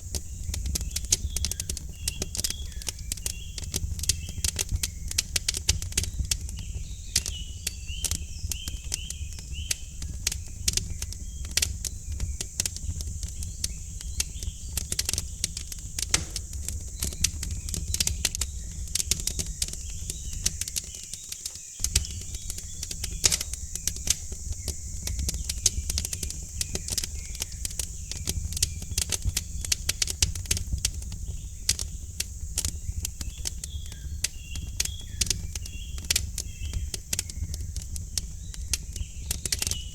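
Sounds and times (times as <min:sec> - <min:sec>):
low fire rumble: 0:00.0 - 0:39.9
wood fire crackling and popping: 0:00.0 - 0:39.9
faint bird chirps: 0:31.3 - 0:39.9.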